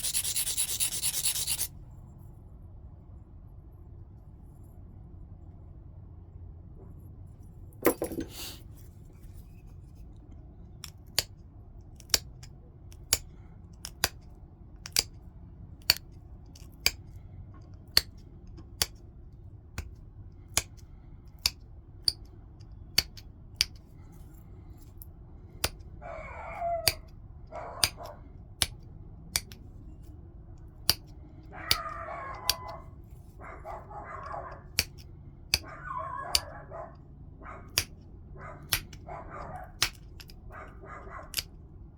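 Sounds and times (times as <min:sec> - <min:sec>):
dog whining: 0:26.0 - 0:28.2, 0:31.6 - 0:34.6, 0:35.6 - 0:37.7.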